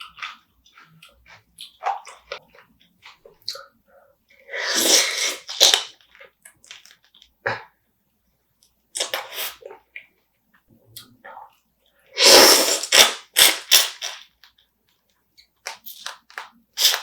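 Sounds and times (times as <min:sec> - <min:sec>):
wet chewing: 0:00.0 - 0:03.7.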